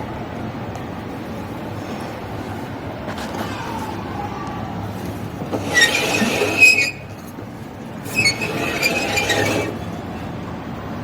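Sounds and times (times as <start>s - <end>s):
washing machine motor humming: 4.7s - 10.4s.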